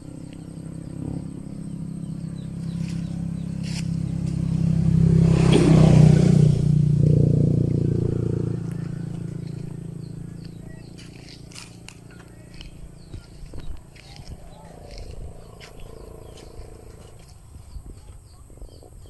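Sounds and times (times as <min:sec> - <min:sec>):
vehicle engine passing by: 0:00.0 - 0:18.9.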